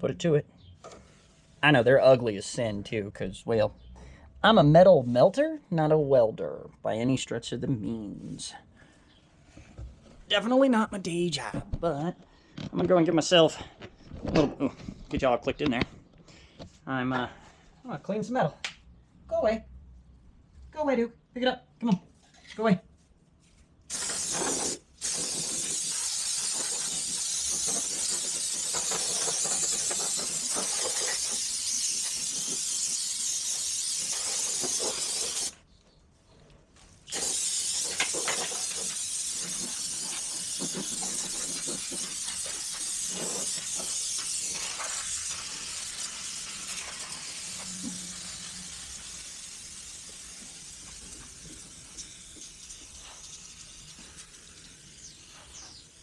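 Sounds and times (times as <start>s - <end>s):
aerosol can spraying: 23.9s - 35.6s, 37.1s - 56.0s.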